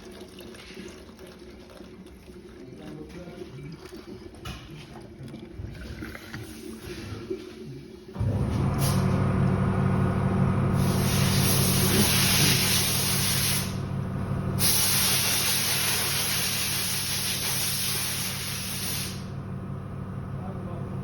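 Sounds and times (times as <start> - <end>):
engine turning over: 8.2 - 14.9
loud hissing spray: 10.8 - 13.8, 14.6 - 19.3.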